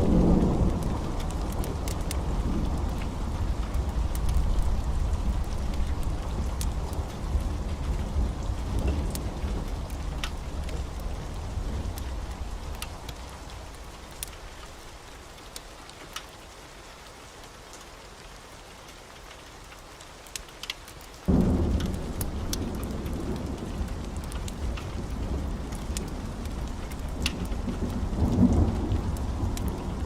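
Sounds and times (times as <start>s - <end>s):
rolling thunder: 0.0s - 12.8s, 21.3s - 30.0s
rain falling: 0.0s - 30.0s
thunderclap: 21.3s - 30.0s.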